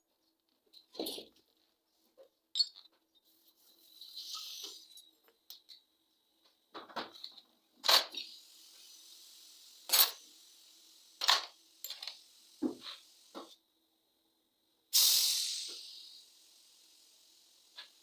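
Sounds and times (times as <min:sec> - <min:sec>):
brief hiss: 0:15.0 - 0:18.0.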